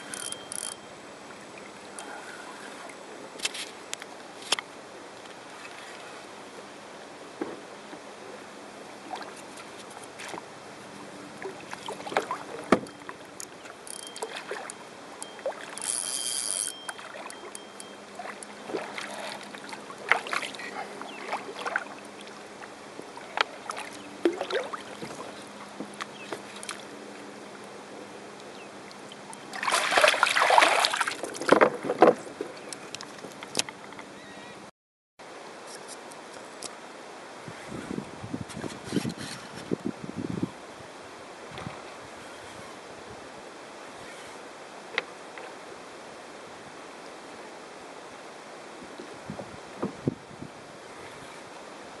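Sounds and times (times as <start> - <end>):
water splashing: 9.0 - 27.0, 28.8 - 32.2
knocks and clicks on boat: 11.7 - 19.1, 31.2 - 34.1, 49.8 - 50.0.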